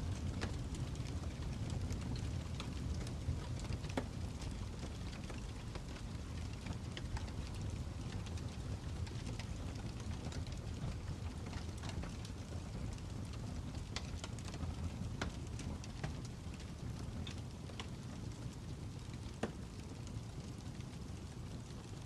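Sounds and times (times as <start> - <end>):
fireplace crackling: 0.0 - 22.0.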